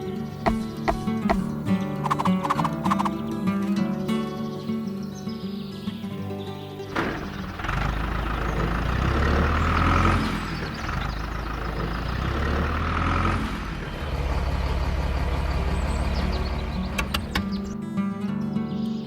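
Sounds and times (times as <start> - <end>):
engine humming: 0.0 - 3.4, 6.9 - 17.8.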